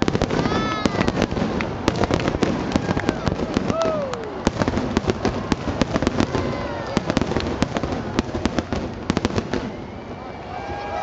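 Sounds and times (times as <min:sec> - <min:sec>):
fireworks popping and cracking: 0:00.0 - 0:09.9.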